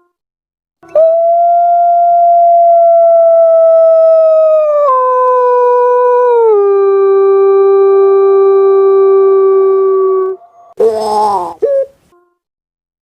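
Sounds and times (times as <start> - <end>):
dove hooting call: 10.1 - 12.0.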